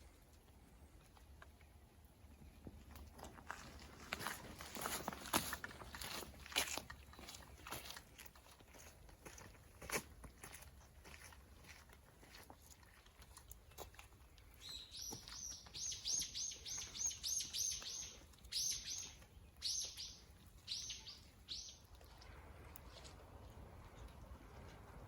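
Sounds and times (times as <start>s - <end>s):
songbird singing: 14.3s - 22.0s.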